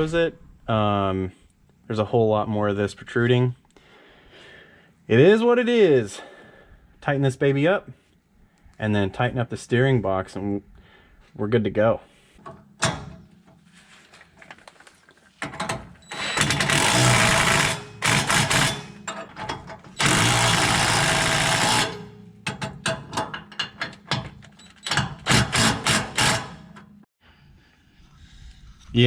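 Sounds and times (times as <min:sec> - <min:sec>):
tool clicking on metal: 0:15.5 - 0:27.0
power wrench running: 0:16.0 - 0:19.2, 0:19.8 - 0:22.6, 0:24.6 - 0:26.8.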